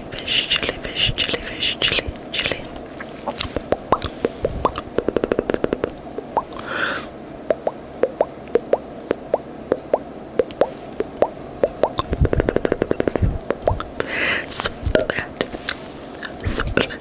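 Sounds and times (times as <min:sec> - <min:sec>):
breathy hiss: 0:00.0 - 0:07.6, 0:10.6 - 0:17.0
wet mouth pops: 0:03.3 - 0:06.7, 0:07.5 - 0:15.2.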